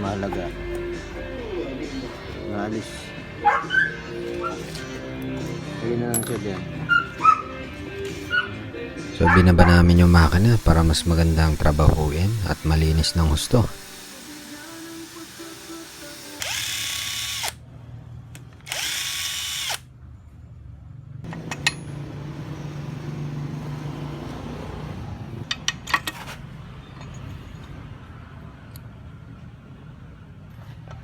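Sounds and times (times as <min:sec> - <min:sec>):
handheld power tool bursts: 0:10.0 - 0:17.6, 0:18.6 - 0:19.9.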